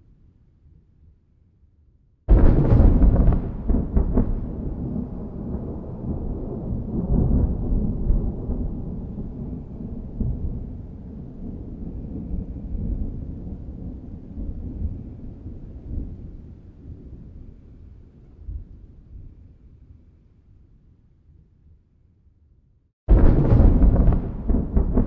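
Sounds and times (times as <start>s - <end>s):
thunder rumbling: 2.3s - 16.3s, 23.1s - 25.0s.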